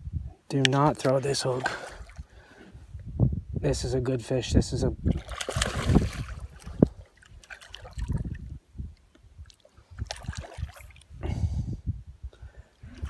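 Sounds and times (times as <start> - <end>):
water sloshing and splashing: 0.7 - 2.5, 5.0 - 8.6, 9.4 - 11.2.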